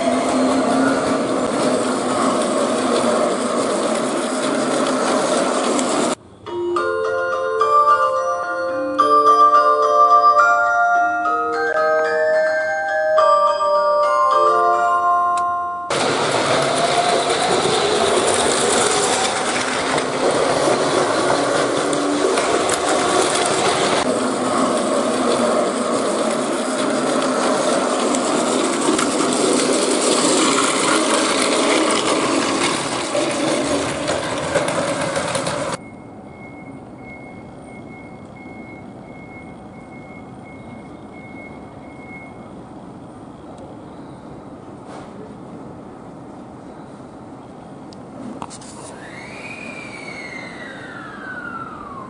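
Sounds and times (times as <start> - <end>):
train clattering: 0.0 - 6.2, 15.9 - 42.4.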